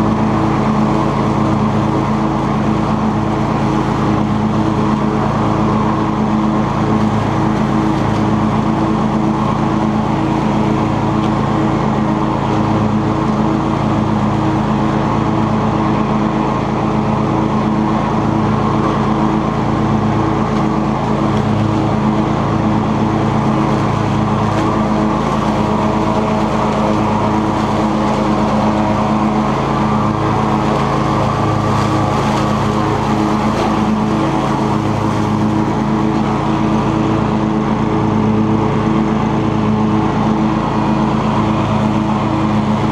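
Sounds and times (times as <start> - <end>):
lawn tractor mowing: 0.0 - 42.9.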